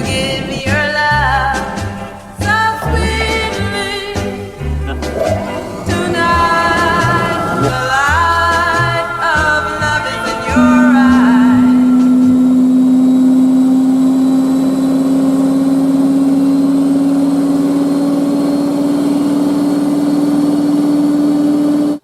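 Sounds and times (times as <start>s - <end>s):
motor whine rising in pitch: 10.6s - 22.0s.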